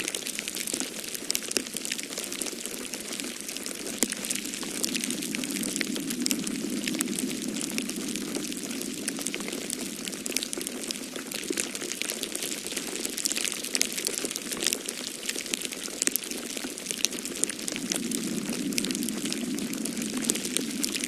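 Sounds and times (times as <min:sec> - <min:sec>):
wood fire crackling: 0:00.0 - 0:21.0
snowstorm wind rushing: 0:04.0 - 0:11.6, 0:16.8 - 0:21.0.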